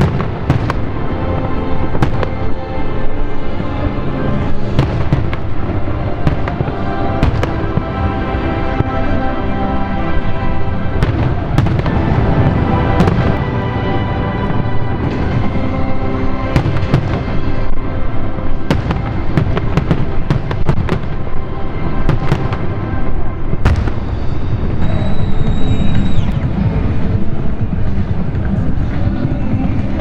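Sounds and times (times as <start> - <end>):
fireworks cracking and booming: 0.0 - 2.6, 4.5 - 9.2, 10.9 - 15.7, 16.5 - 17.8, 18.6 - 30.0
music playing: 0.0 - 30.0
high steady whistle tone: 23.9 - 26.6.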